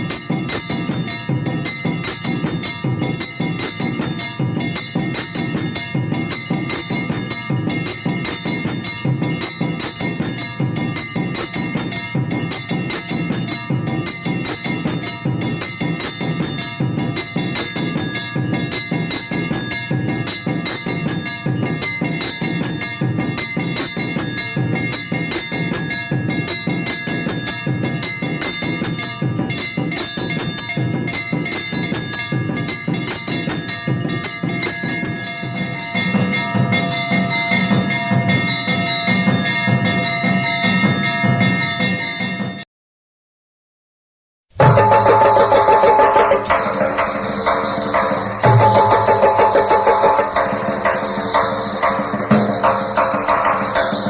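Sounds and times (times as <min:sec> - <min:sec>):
fast steady drumming: 0:00.0 - 0:42.6, 0:44.5 - 0:54.0
temple bells ringing: 0:00.0 - 0:42.6, 0:44.6 - 0:54.0.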